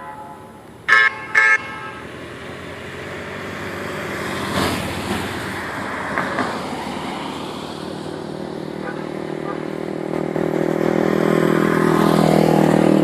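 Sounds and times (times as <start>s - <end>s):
vehicle horn tooting: 0.0s - 2.2s, 8.8s - 9.8s
passing vehicle noise: 0.0s - 13.0s.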